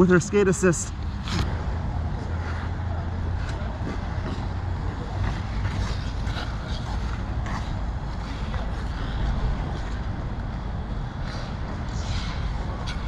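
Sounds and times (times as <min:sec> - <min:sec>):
steady low rumble: 0:00.0 - 0:13.0
ice skate blades scraping ice: 0:03.3 - 0:10.0.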